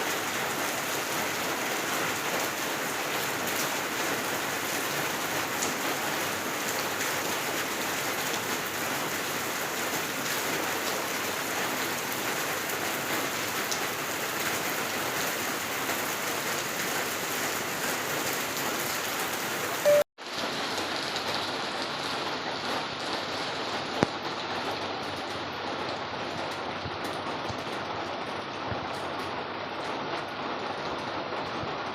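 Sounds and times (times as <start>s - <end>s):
steady rain falling: 0.0s - 31.9s.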